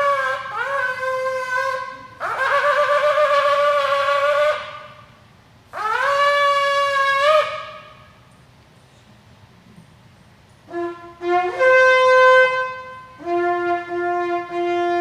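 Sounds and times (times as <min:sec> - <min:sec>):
ram's horn blasts: 0:00.0 - 0:08.3, 0:10.6 - 0:15.0.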